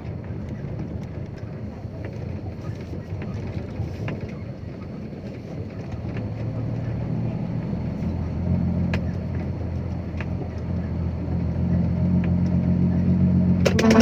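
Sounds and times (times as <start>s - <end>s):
road noise: 0.0s - 14.0s
truck diesel engine rumble: 0.0s - 14.0s
cab rattles: 13.6s - 14.0s.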